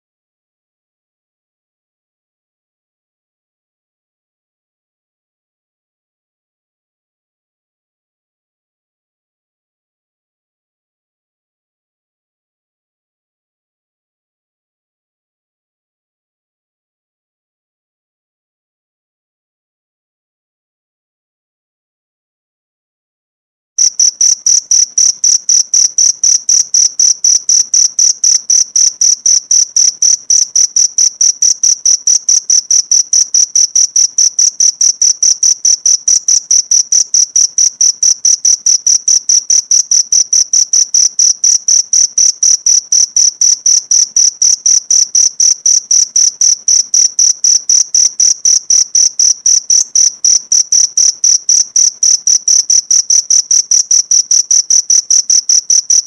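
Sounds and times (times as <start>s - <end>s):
cricket chirping: 23.8s - 56.0s.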